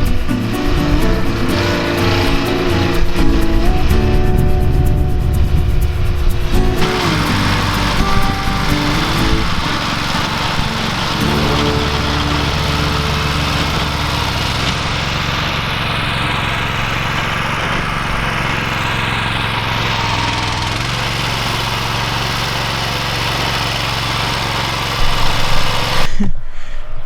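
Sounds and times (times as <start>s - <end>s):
walk-behind tractor engine running: 0.0s - 26.1s.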